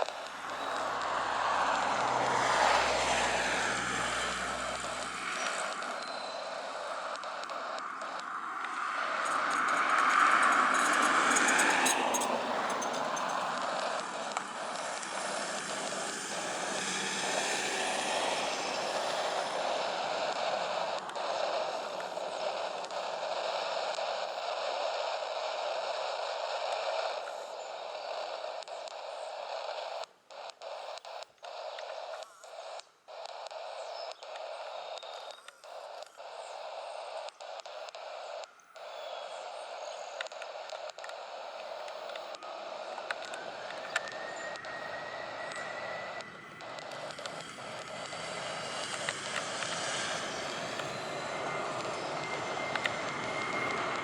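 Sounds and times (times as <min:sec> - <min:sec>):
jet engines roaring: 0:00.0 - 0:25.7, 0:39.4 - 0:54.0.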